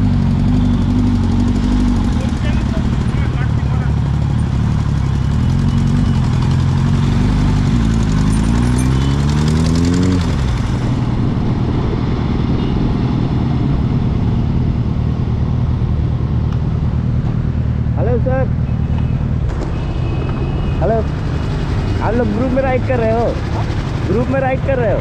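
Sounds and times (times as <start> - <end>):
motorcycle engine revving: 0.0 - 25.0
steady low rumble: 10.5 - 25.0.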